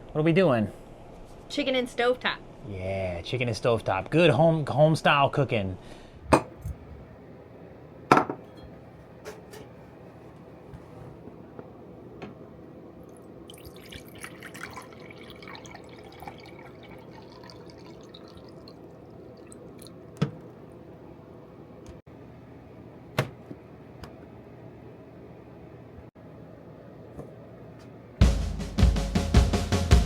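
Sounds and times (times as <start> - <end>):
utensils and dishes clinking: 8.2 - 9.8.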